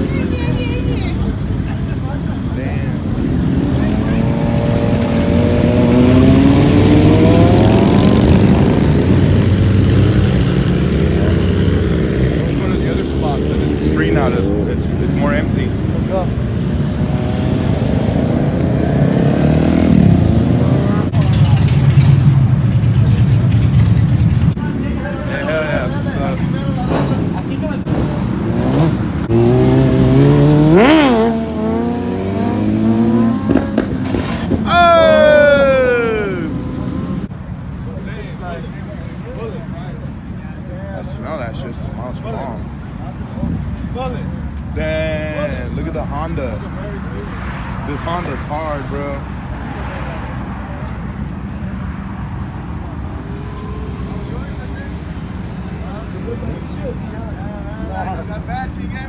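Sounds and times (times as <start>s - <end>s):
low rumble of engines: 0.0s - 59.0s
motorcycle engine revving: 2.8s - 35.2s, 35.8s - 37.3s.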